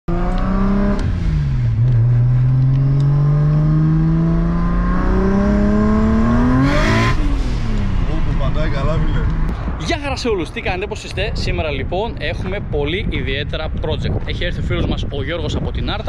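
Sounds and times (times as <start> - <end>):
car engine accelerating hard: 0.1 - 9.5.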